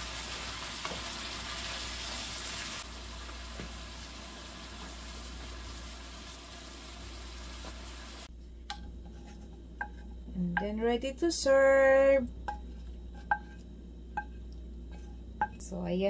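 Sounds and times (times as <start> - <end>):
shrimp sizzling in frying pan: 0.0 - 8.3.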